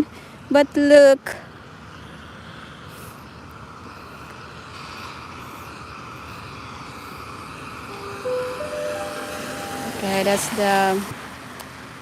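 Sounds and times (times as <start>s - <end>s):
distant motor vehicle: 2.5s - 11.8s.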